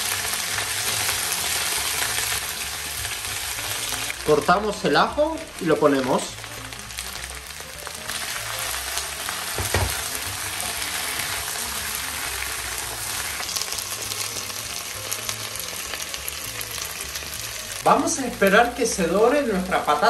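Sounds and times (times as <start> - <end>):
potatoes and onion sizzling in oil: 0.0 - 20.0
knock: 9.6 - 10.0.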